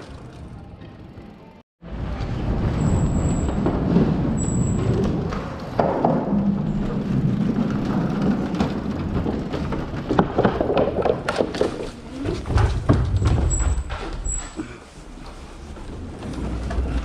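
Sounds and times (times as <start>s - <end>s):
bike tyre rumble: 0.0s - 17.0s
bike clicks and knocks: 2.1s - 14.6s.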